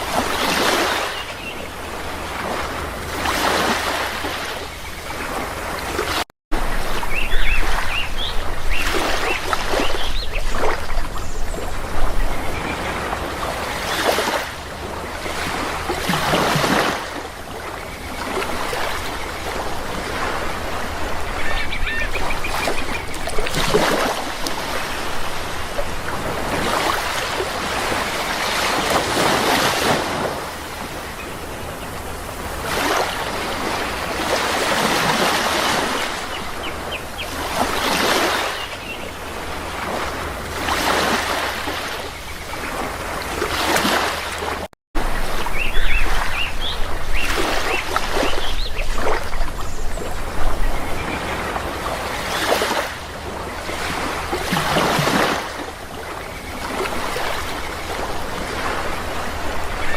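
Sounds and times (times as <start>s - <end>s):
sea waves breaking: 0.0s - 59.9s
faint bird calls: 21.0s - 23.5s.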